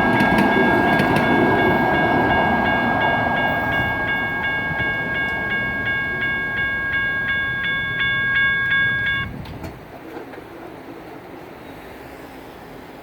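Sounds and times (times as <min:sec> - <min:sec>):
crossing bell ringing: 0:00.0 - 0:09.4
passing train rumble: 0:00.0 - 0:13.0.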